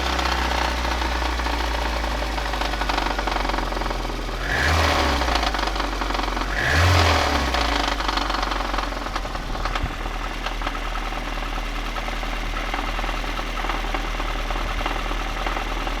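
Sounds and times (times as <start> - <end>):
engine revving: 4.4 - 5.8, 6.4 - 8.7
car engine idling with a knock: 8.2 - 16.0.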